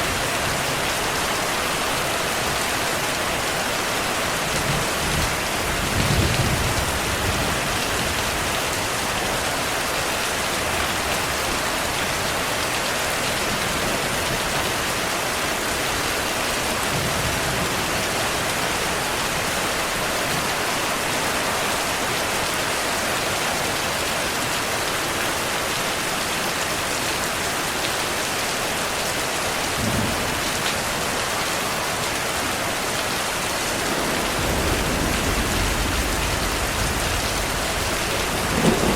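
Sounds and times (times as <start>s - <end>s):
steady rain falling: 0.0s - 38.9s
distant thunder rumbles: 33.4s - 38.9s.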